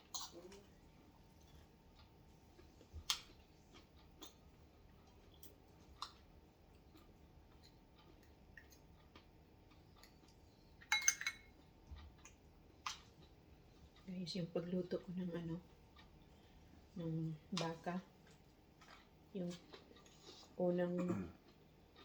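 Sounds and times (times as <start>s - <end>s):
spoon clinking on bowl: 10.9s - 11.5s.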